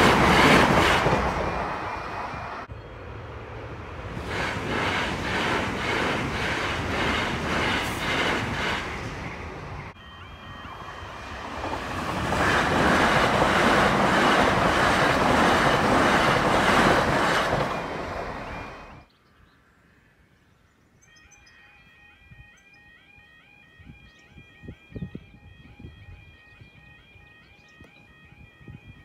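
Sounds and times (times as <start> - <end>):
crossing warning alarm: 0.0 - 3.7, 5.0 - 19.1, 21.0 - 29.0
train passing: 0.0 - 19.1.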